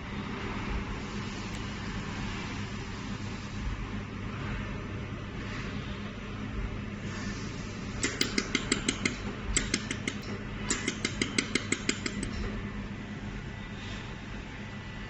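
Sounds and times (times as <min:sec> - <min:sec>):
cooling hum: 0:00.0 - 0:15.0.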